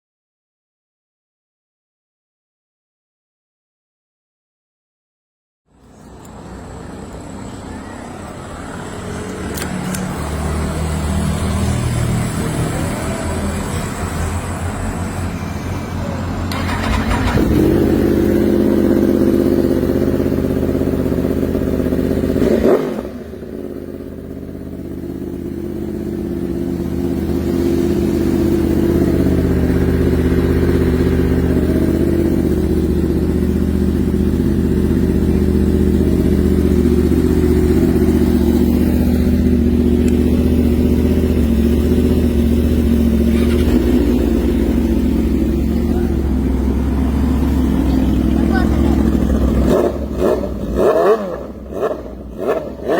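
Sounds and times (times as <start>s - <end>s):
motorcycle engine idling: 5.7s - 52.9s.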